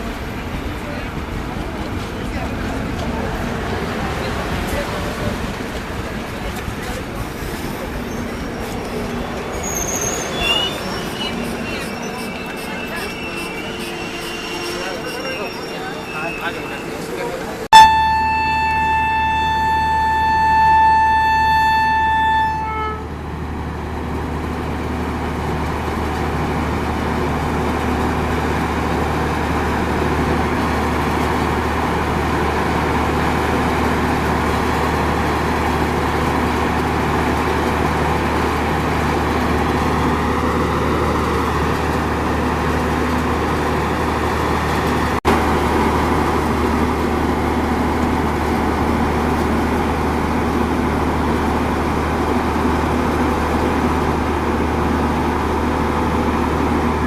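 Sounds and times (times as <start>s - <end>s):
train coaches rumbling: 0.0s - 57.0s
locomotive horn blast: 10.4s - 17.1s, 17.7s - 23.4s.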